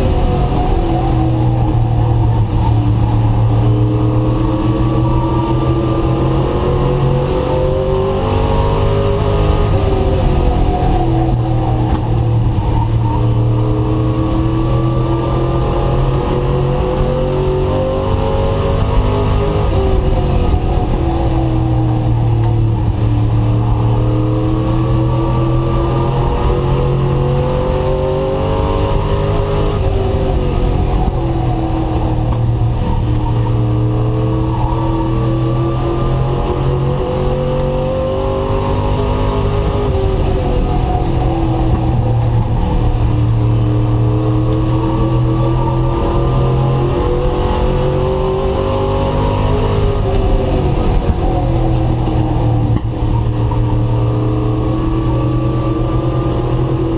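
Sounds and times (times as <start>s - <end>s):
truck engine accelerating: 0.0s - 56.9s.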